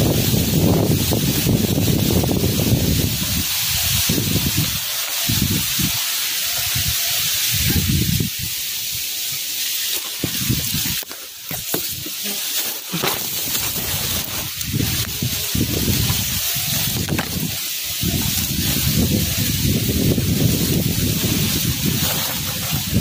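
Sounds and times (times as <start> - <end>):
wind buffeting microphone: 0.0 - 9.0, 10.2 - 12.0, 13.4 - 23.0
wind-blown leaves hissing: 0.0 - 23.0
sharp clicks and rustles: 9.8 - 23.0.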